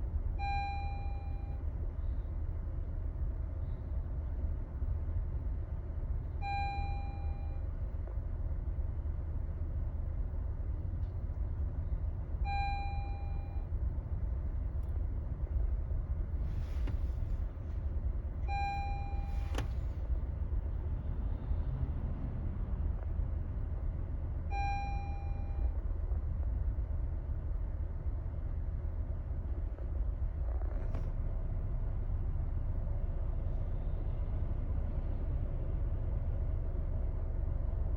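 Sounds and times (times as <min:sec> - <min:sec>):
car engine running: 0:14.6 - 0:21.3.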